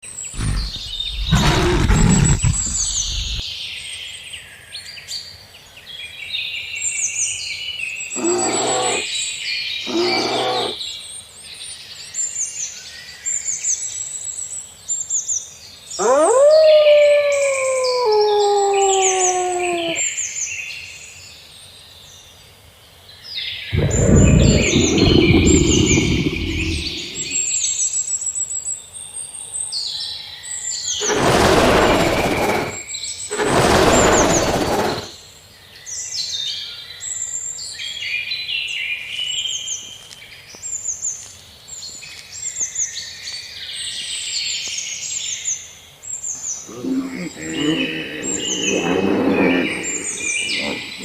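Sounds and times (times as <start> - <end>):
birdsong: 0.2 - 3.5, 8.1 - 10.9, 15.9 - 20.1, 23.8 - 27.6, 30.9 - 35.2, 46.3 - 51.0
animal call sliding downward: 0.4 - 3.4, 8.2 - 9.1, 9.9 - 10.8, 16.0 - 20.0, 23.8 - 27.5, 31.0 - 35.1, 46.7 - 51.0
animal deep roar: 0.4 - 3.4, 8.2 - 9.1, 9.9 - 10.8, 16.0 - 20.0, 23.8 - 27.5, 31.0 - 35.1, 46.7 - 51.0
animal growls: 0.4 - 3.4, 8.2 - 9.1, 9.9 - 10.8, 16.0 - 20.0, 23.8 - 27.5, 31.0 - 35.1, 46.6 - 51.0.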